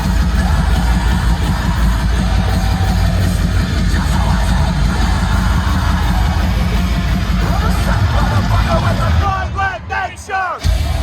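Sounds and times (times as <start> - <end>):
metalcore band playing: 0.0 - 11.0.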